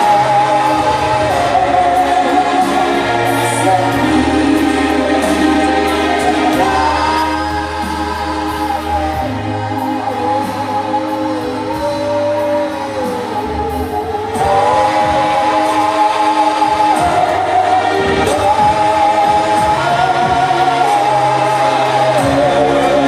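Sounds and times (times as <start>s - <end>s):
low bass line: 0.0s - 23.0s
voices singing held notes: 0.0s - 23.0s.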